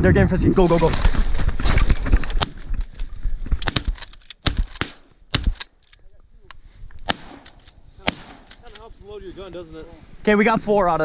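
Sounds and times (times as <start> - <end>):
shotguns firing: 3.6 - 5.8, 7.0 - 8.8.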